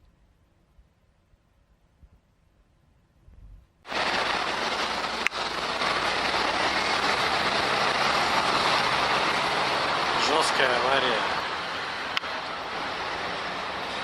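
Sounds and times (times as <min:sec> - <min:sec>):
vehicle and road noise: 0:03.8 - 0:14.0.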